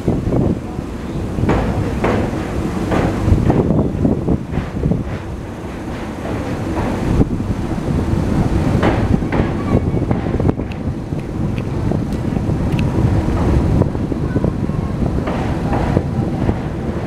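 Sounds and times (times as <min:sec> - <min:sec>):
train wheels rumbling on rail: 0:00.0 - 0:17.0
wind buffeting microphone: 0:00.0 - 0:17.0
clanks and knocks: 0:01.4 - 0:07.3, 0:08.8 - 0:11.3, 0:15.2 - 0:17.0.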